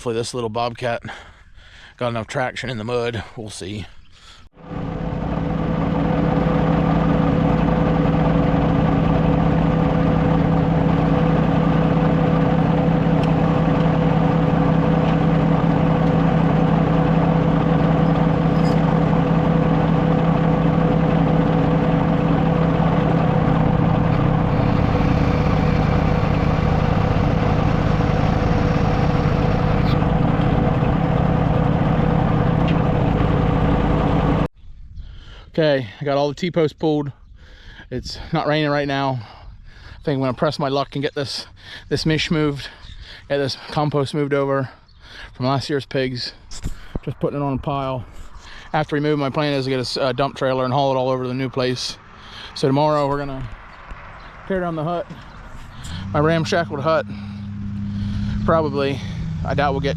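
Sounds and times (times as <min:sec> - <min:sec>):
loader engine running: 0:04.6 - 0:34.5, 0:54.6 - 0:59.9.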